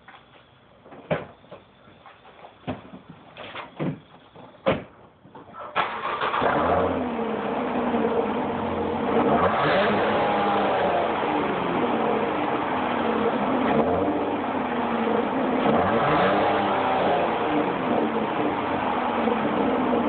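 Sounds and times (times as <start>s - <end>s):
car engine starting and revving: 5.8s - 20.0s.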